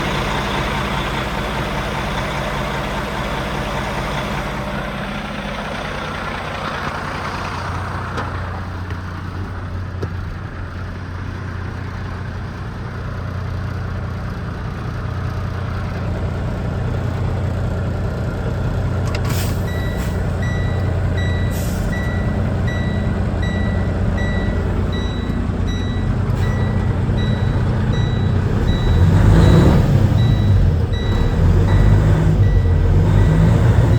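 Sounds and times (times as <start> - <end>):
truck backup alarm beeping: 0.0 - 8.8, 19.4 - 33.9
diesel truck engine running: 0.0 - 33.9
short air hisses: 21.5 - 21.9.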